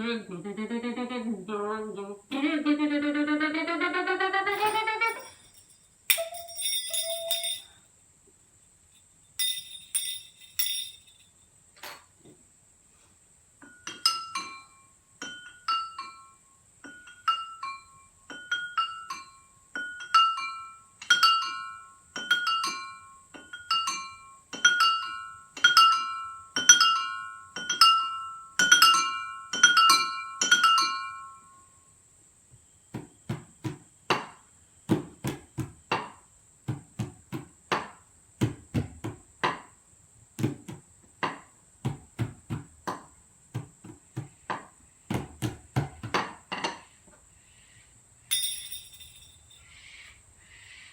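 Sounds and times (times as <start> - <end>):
drinking glasses clinking: 4.6 - 7.8, 9.4 - 11.2, 48.3 - 49.6.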